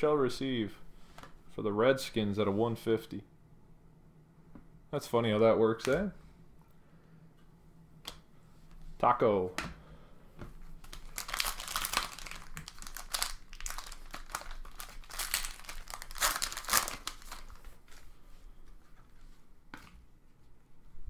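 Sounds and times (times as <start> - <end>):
plastic wrappers crinkling: 10.8 - 18.1.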